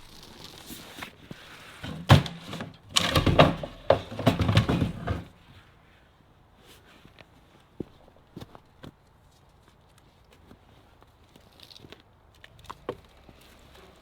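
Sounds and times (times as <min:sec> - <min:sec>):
sharp knocks and clattering thumps: 0:01.8 - 0:05.3.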